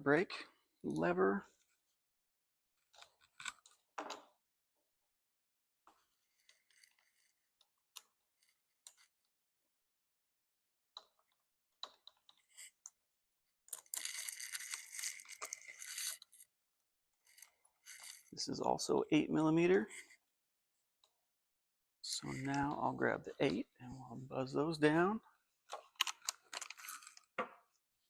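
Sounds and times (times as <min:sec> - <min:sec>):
small metal parts clicking: 0:13.7 - 0:16.4.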